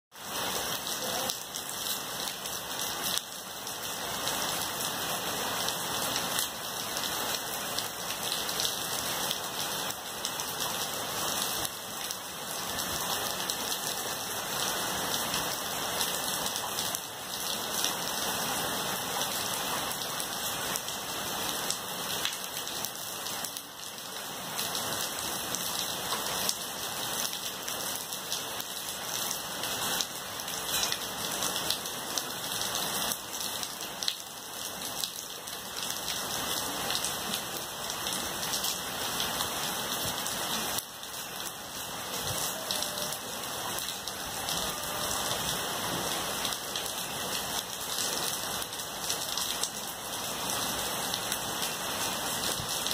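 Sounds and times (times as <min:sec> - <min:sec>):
rain falling on trees and grass: 0:00.1 - 0:52.9.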